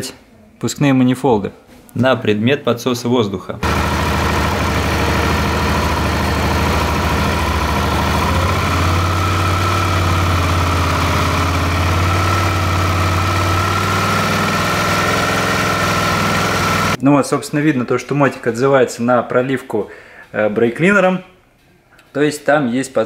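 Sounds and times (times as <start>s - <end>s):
motorcycle engine idling: 3.6s - 17.0s.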